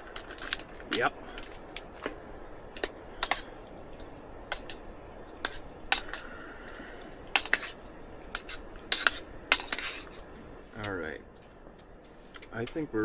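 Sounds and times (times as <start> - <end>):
sharp clicks and light clinks: 2.8 - 6.4.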